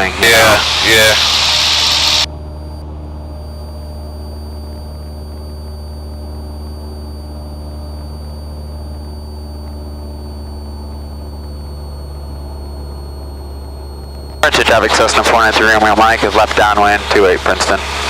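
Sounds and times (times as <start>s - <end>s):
aircraft engine and propeller droning: 0.0s - 18.0s
faint high whine: 0.0s - 18.0s.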